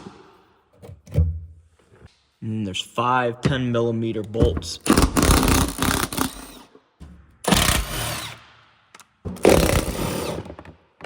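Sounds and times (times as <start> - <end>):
power tool spinning: 7.5 - 8.4, 9.4 - 10.6.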